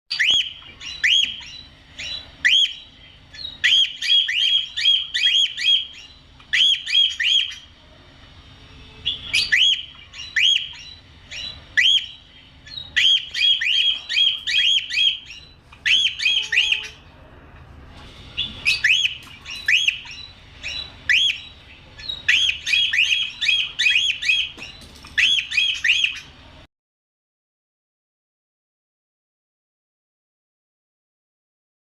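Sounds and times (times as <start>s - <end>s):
cockatiel calling: 0.1s - 7.7s, 9.0s - 17.0s, 18.4s - 26.3s.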